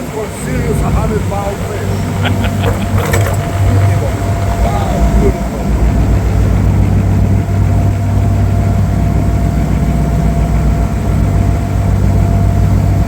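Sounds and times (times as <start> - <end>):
boat engine drone: 0.0 - 13.0
faint steady whine: 0.0 - 13.0.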